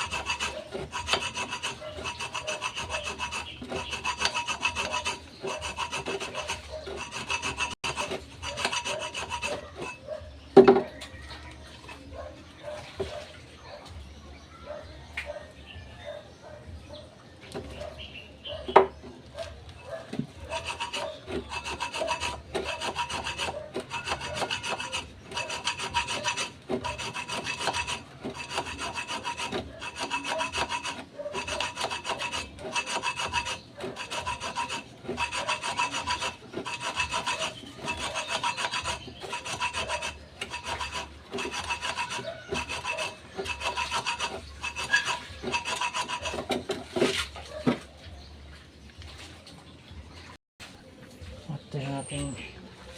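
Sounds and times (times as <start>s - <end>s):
hand tool scraping steel drum: 0.0s - 10.2s, 19.9s - 47.6s.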